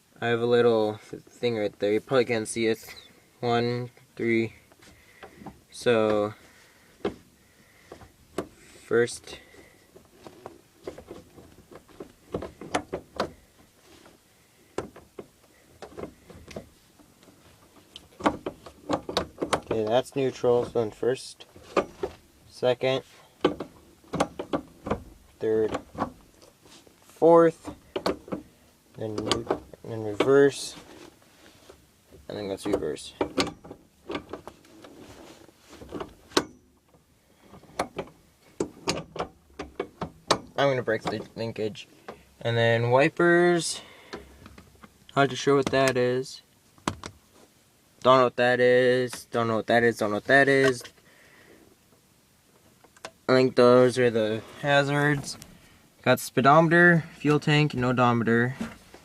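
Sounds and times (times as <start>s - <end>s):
gear shift lever clunking: 7.9s - 13.7s, 14.7s - 22.3s, 23.4s - 26.6s, 27.2s - 31.1s, 31.7s - 45.0s, 46.8s - 47.2s
person talking: 48.0s - 50.9s, 53.3s - 55.4s, 56.0s - 58.7s.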